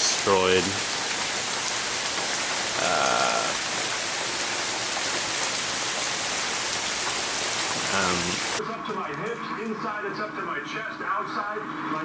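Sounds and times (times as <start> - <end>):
heavy rain hiss: 0.0 - 8.6.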